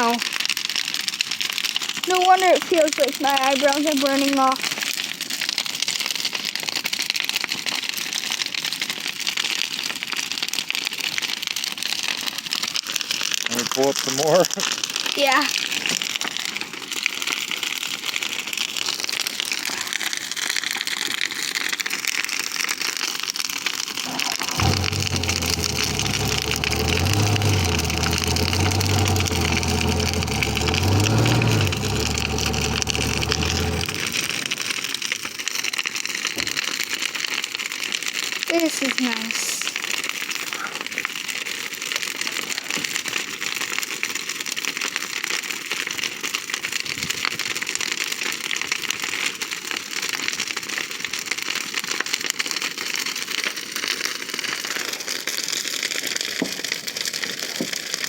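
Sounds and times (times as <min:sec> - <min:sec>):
bonfire wood crackling and popping: 0:00.0 - 0:58.0
low engine hum: 0:24.3 - 0:34.8.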